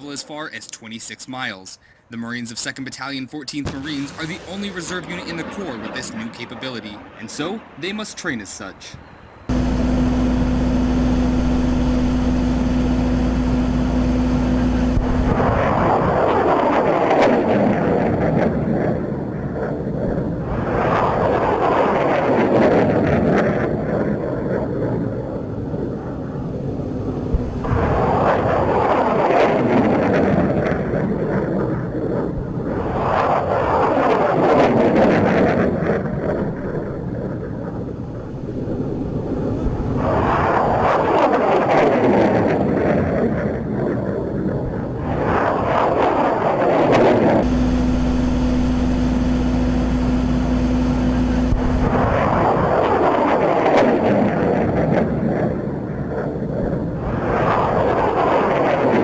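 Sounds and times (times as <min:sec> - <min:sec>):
rocket launch roar: 0:03.6 - 0:08.6, 0:09.5 - 0:59.0
launcher thump: 0:03.7 - 0:05.6
low rumble: 0:03.7 - 0:06.6, 0:09.5 - 0:18.1, 0:23.8 - 0:33.0, 0:42.6 - 0:53.3
steady low drone with hum: 0:09.5 - 0:21.7, 0:23.6 - 0:33.0, 0:42.5 - 0:58.4.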